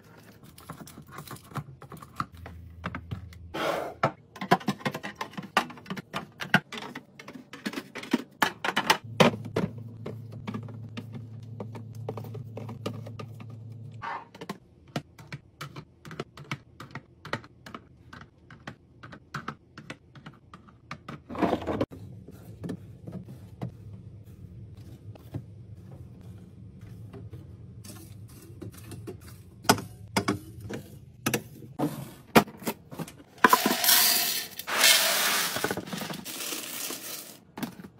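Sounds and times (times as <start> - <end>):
plastic containers clicking and tapping: 4.3 - 13.6, 14.4 - 21.3.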